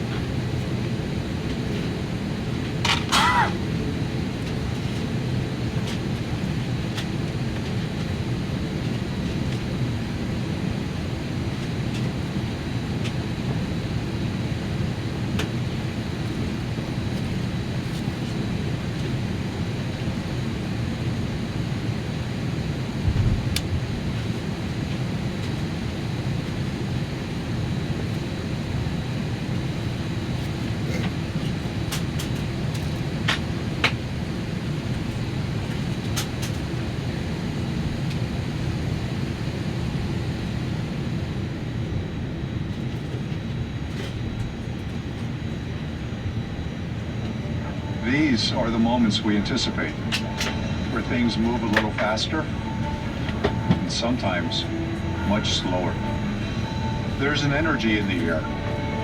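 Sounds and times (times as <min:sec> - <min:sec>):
aircraft cabin rumble: 0:00.0 - 0:59.0
faint high tone: 0:47.3 - 0:59.0.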